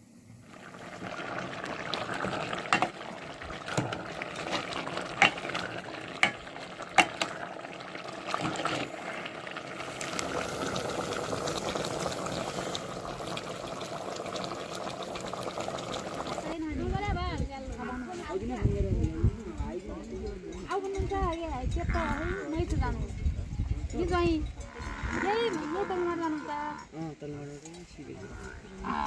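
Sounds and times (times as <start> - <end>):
food sizzling in a pan: 0.0 - 16.6
utensil clinking against pan: 3.6 - 7.4.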